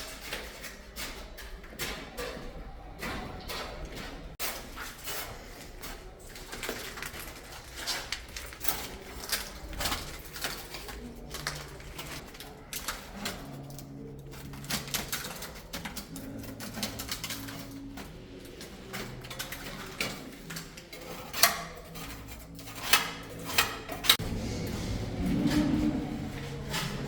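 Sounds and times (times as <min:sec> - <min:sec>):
low steady drone: 0:24.2 - 0:27.0.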